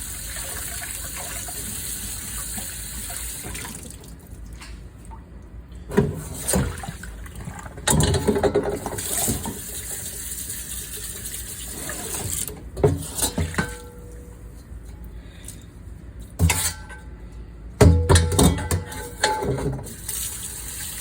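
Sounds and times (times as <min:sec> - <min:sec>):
tap water running: 0:00.0 - 0:04.3, 0:05.9 - 0:14.2, 0:19.0 - 0:21.0.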